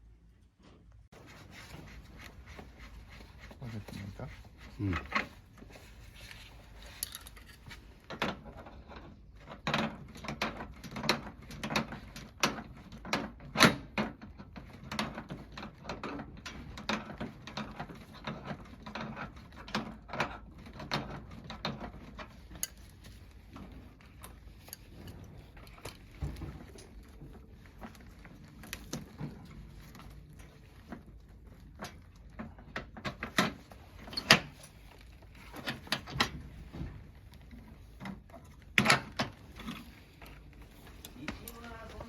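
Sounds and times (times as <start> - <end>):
tools clattering on metal parts: 40.9 - 42.0.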